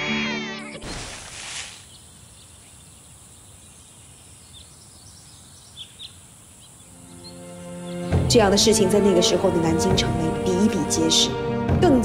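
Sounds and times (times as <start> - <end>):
low outdoor hiss: 0.9 - 8.0.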